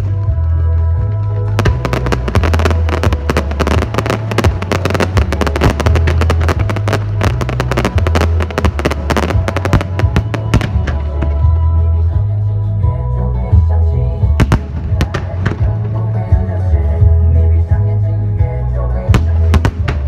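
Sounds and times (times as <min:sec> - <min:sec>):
loud music with pulsing bass: 0:00.0 - 0:20.0
fireworks bursting and crackling: 0:01.4 - 0:11.5, 0:19.2 - 0:20.0.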